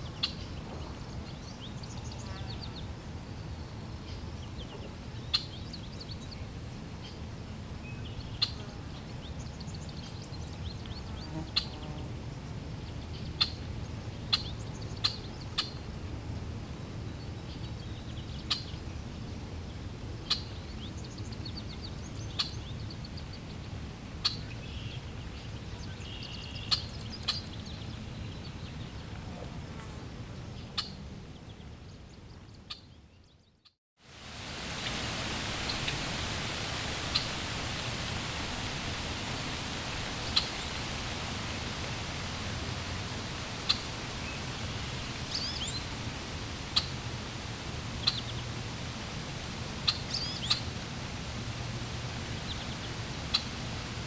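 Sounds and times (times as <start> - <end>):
water flowing: 34.1 - 54.0
small birds chirping: 43.6 - 45.9, 49.8 - 50.7.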